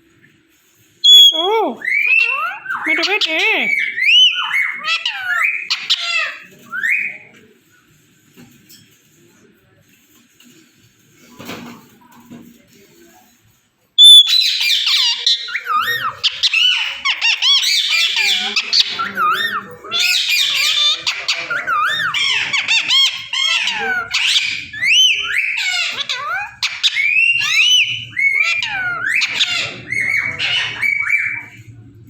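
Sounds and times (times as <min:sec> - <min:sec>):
parrot squawking and whistling: 0:01.0 - 0:07.2, 0:14.0 - 0:31.6.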